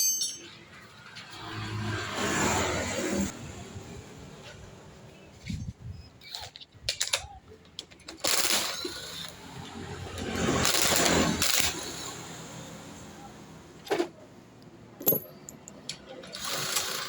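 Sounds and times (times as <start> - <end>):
metal tools clinking: 0.0 - 0.7, 15.0 - 16.2.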